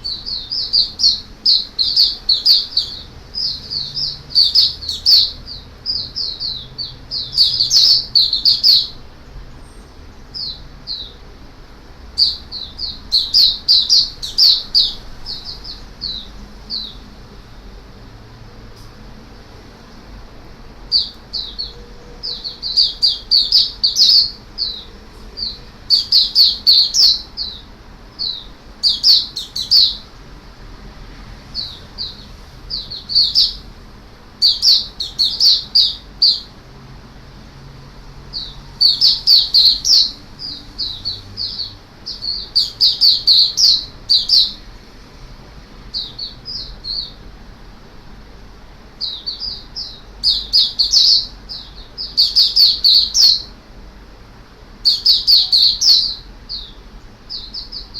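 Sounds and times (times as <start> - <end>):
bird chirping rapidly: 0.0 - 11.3, 12.1 - 17.2, 20.9 - 30.2, 31.5 - 33.7, 34.4 - 36.6, 38.3 - 44.8, 45.9 - 47.3, 49.0 - 53.6, 54.8 - 57.9.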